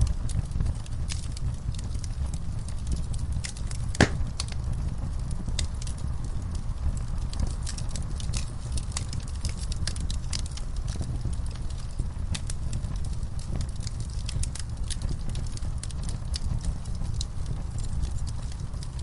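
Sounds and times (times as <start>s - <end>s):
wood fire crackling: 0.0s - 19.0s
sharp pops and snaps: 2.9s - 4.6s.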